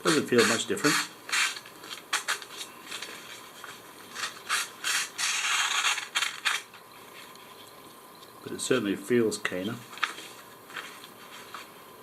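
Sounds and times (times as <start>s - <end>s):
knife blade slicing paper: 0.0s - 6.7s.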